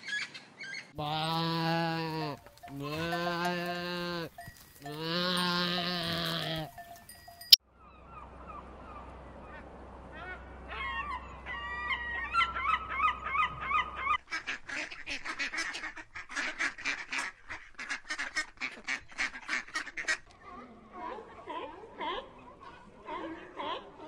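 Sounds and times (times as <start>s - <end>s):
gulls calling: 6.1s - 14.2s
duck quacking loudly: 13.5s - 20.2s.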